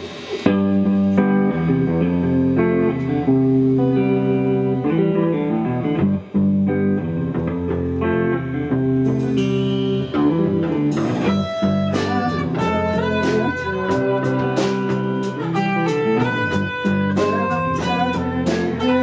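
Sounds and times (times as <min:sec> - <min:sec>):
bass guitar: 0:00.0 - 0:19.0
electric guitar chords: 0:00.0 - 0:19.0.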